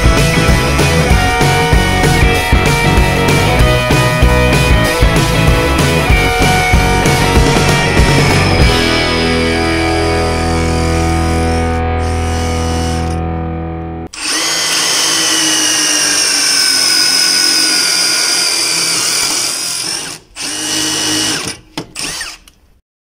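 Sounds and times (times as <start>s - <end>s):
drill whining into steel: 8.5s - 13.2s, 14.1s - 22.6s.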